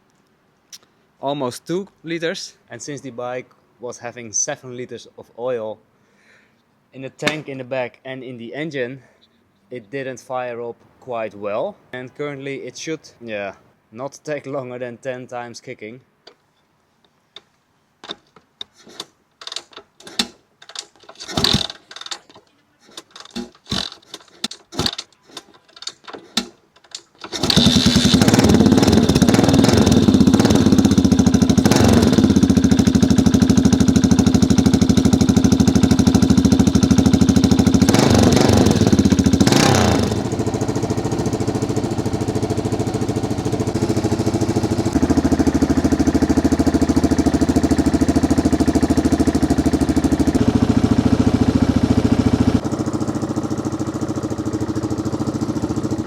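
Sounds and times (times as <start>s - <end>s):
motorcycle engine running: 27.3s - 56.0s.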